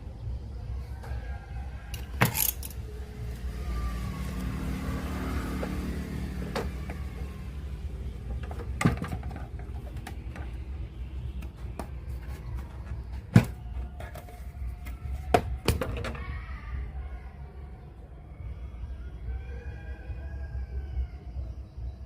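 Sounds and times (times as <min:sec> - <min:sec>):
handling clicks and knocks: 0:02.0 - 0:02.9, 0:08.2 - 0:16.2.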